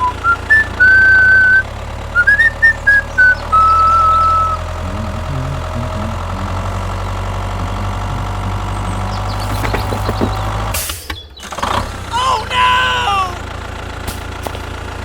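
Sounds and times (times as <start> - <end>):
person whistling: 0.0 - 1.6, 2.2 - 4.6
tractor engine idling: 0.0 - 15.0.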